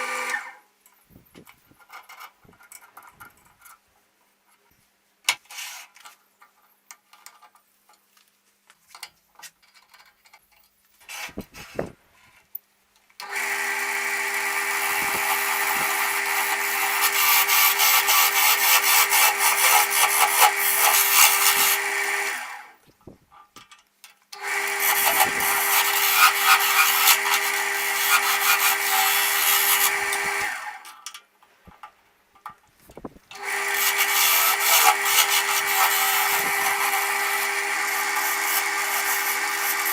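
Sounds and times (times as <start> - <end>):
wood lathe humming: 0.0 - 0.6, 13.2 - 22.8, 24.4 - 30.8, 33.4 - 39.9
tool scraping wood: 14.6 - 22.4, 24.7 - 30.8, 33.4 - 39.9.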